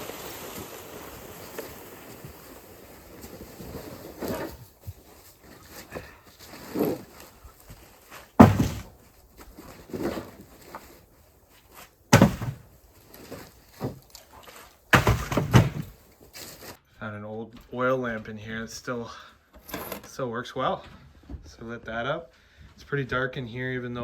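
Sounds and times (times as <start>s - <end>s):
loud thumps: 8.4s - 9.0s, 12.1s - 12.8s, 14.9s - 16.0s.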